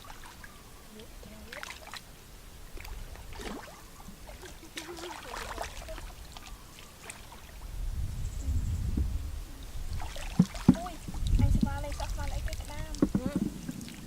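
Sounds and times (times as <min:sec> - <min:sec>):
water splashing and sloshing: 0:00.0 - 0:07.8, 0:09.0 - 0:14.0
low rumble: 0:07.6 - 0:10.3.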